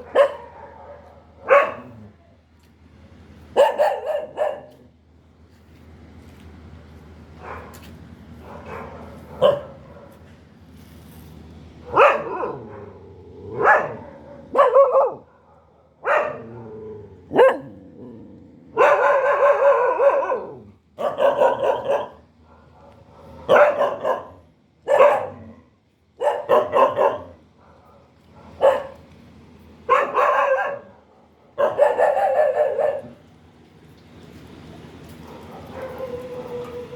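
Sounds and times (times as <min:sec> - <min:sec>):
dog barking: 0:00.0 - 0:02.0, 0:03.5 - 0:04.8, 0:07.4 - 0:07.8, 0:08.4 - 0:10.2, 0:11.9 - 0:16.6, 0:17.3 - 0:17.8, 0:18.8 - 0:25.6, 0:26.2 - 0:29.0, 0:29.9 - 0:33.2, 0:35.2 - 0:36.9.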